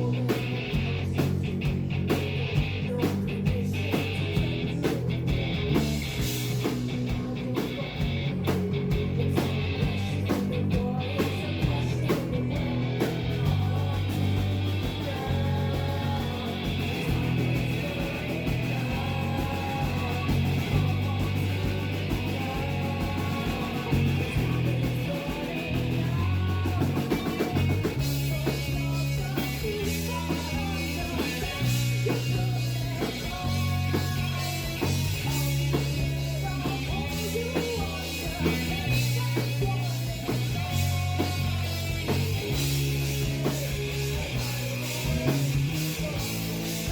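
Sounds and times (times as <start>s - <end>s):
drums: 0.0s - 46.9s
faint lead vocal: 0.0s - 46.9s
live rock band playing: 0.0s - 46.9s.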